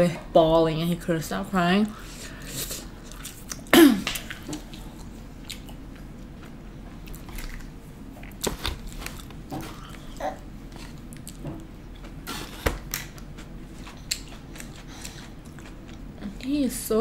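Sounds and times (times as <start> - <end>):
chewing and biting: 13.0 - 16.1.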